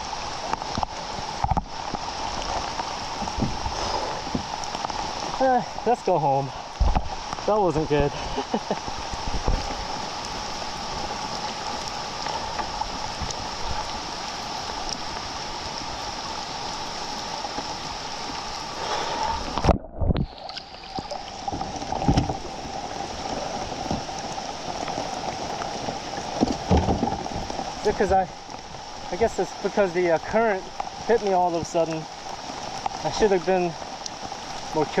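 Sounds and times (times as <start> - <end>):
river current rushing: 0.0 - 35.0
heavy knocks and splashes: 21.5 - 22.5, 26.3 - 28.3.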